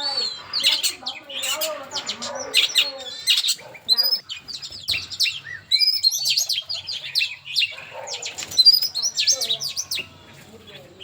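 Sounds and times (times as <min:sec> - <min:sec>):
songbird chirping and whistling: 0:00.0 - 0:11.0.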